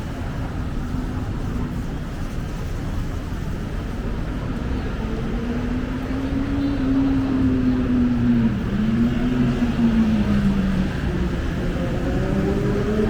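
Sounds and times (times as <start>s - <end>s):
city road traffic: 0.0s - 13.0s.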